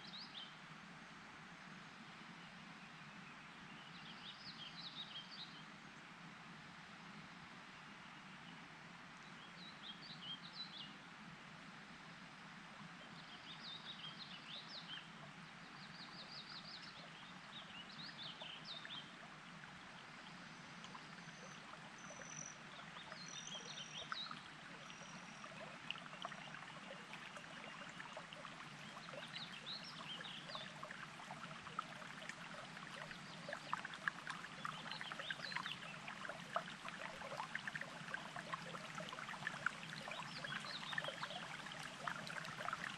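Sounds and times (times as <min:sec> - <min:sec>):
songbirds chirping: 0:12.8 - 0:42.9
mountain stream burbling: 0:13.2 - 0:42.9.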